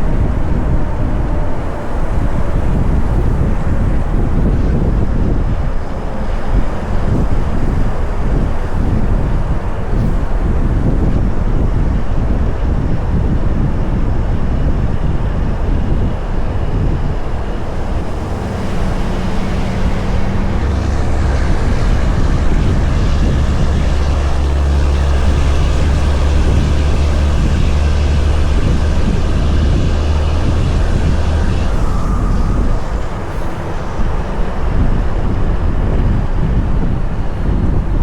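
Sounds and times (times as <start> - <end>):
road and wind noise: 0.0 - 38.0
truck diesel engine drone: 0.0 - 38.0.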